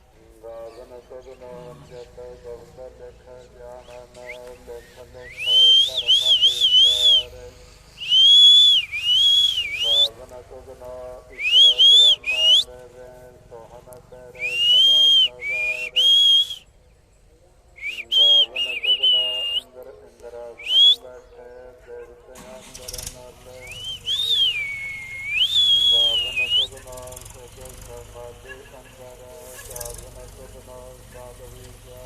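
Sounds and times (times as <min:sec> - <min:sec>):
high whistled melody: 0:05.2 - 0:07.4, 0:08.0 - 0:10.1, 0:11.4 - 0:12.6, 0:14.4 - 0:16.6, 0:17.8 - 0:19.6, 0:20.6 - 0:21.0, 0:23.6 - 0:26.8.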